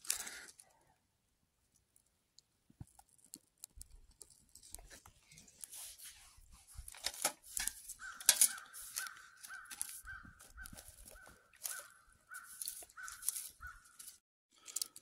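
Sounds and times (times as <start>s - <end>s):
clicks and rustles: 1.7s - 15.0s
bird calling: 7.6s - 14.2s.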